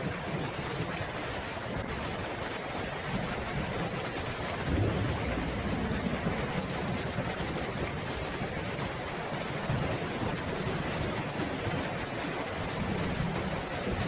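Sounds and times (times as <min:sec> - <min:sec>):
steady rain hissing: 0:00.0 - 0:14.0
distant thunder rumbling: 0:04.6 - 0:08.8.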